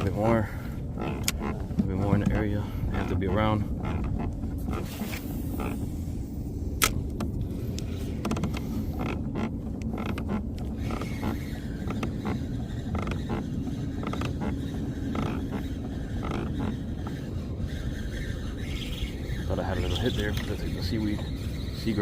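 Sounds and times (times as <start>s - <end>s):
fishing gear clicking: 0.0s - 5.8s, 6.7s - 17.2s
kayak creaking: 0.0s - 22.0s
low rumble: 0.0s - 22.0s.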